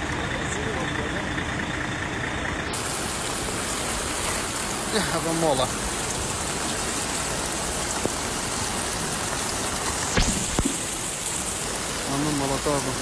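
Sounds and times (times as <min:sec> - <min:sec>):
heavy rain hissing: 0:00.0 - 0:13.0
rushing floodwater: 0:02.1 - 0:13.0
sharp knocks: 0:10.2 - 0:10.8.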